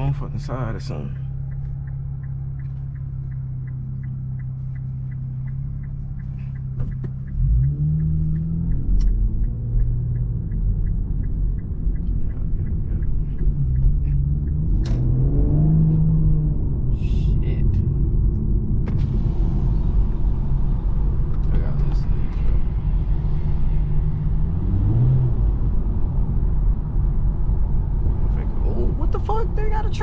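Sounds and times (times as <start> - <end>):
light even ticking: 0.0 - 15.8
car engine running: 0.0 - 30.0.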